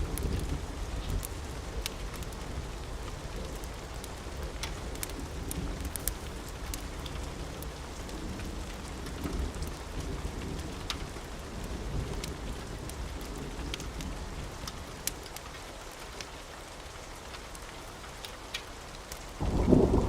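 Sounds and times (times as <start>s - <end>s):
steady rain: 0.0s - 20.0s
sharp ticks and pops: 4.4s - 11.2s
rolling thunder: 19.4s - 20.0s.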